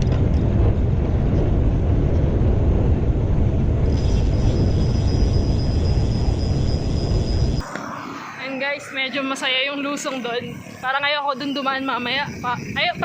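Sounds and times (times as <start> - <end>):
wind buffeting microphone: 0.0 - 13.0
thin high steady tone: 3.9 - 13.0.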